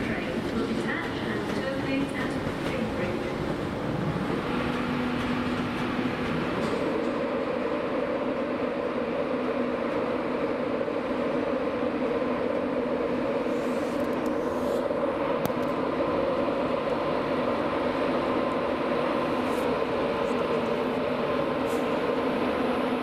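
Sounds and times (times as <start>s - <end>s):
electric train drone: 0.0s - 23.0s.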